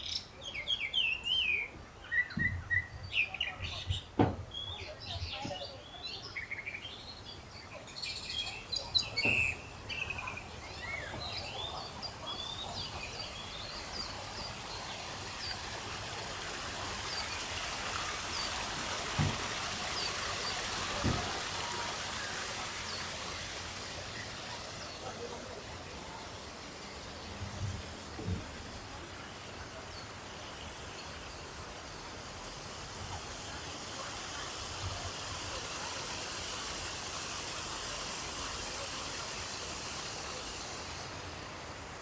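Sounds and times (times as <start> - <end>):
small birds chirping: 0.0 - 32.2
steady background hiss: 0.0 - 42.0.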